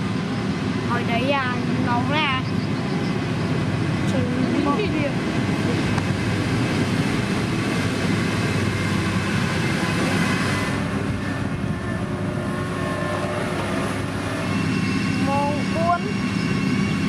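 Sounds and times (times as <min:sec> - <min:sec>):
diesel engine humming: 0:00.0 - 0:17.0.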